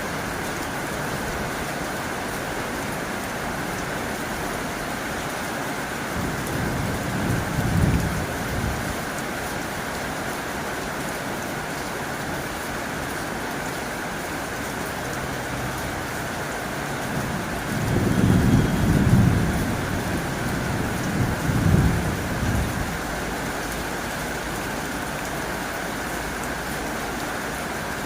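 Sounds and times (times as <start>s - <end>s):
heavy rain on a tin roof: 0.0s - 28.0s
low rumbles of thunder: 6.1s - 9.0s, 17.2s - 23.2s.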